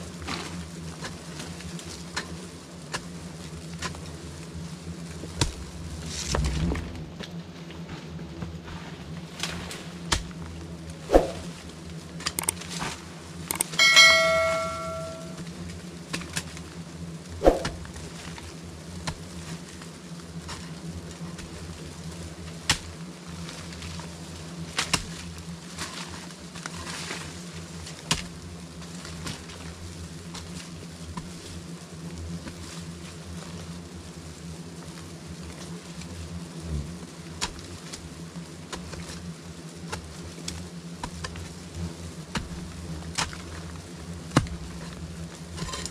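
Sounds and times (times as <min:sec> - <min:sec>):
short ringing tone: 0:13.5 - 0:15.4.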